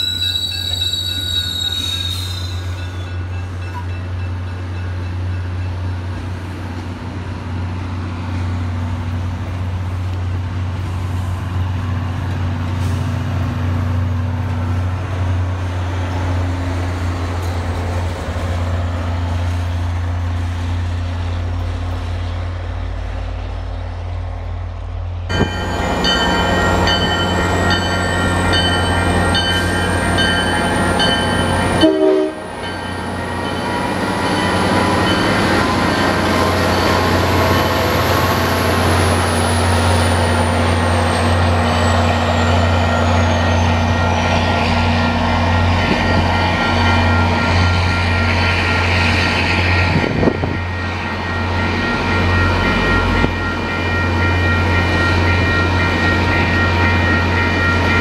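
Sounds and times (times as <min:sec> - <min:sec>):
crossing bell ringing: 0:00.0 - 0:06.0, 0:25.3 - 0:58.0
diesel locomotive approaching: 0:00.0 - 0:58.0
train coaches rolling by: 0:00.0 - 0:58.0
train horn: 0:31.8 - 0:32.6.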